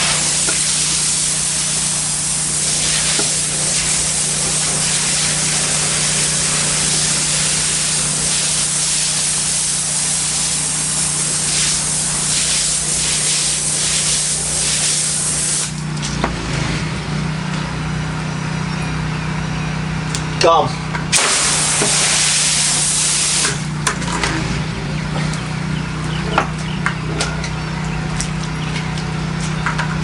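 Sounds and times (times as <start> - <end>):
pressure washer spraying tile: 0.0 - 16.1, 21.1 - 24.5
engine droning: 15.7 - 30.0.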